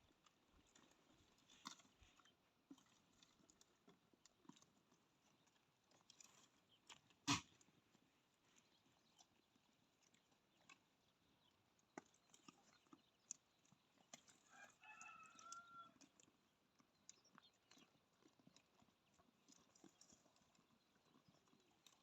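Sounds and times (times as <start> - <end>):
faint clicks and ticks: 0.2 - 7.7, 8.6 - 22.0
distant rooster crowing: 14.5 - 16.0.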